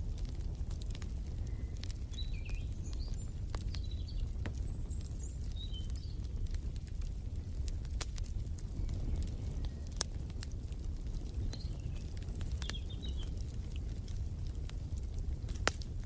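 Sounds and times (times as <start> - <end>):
wood fire crackling and popping: 0.0 - 16.0
small birds chirping: 1.1 - 7.1, 10.8 - 14.2.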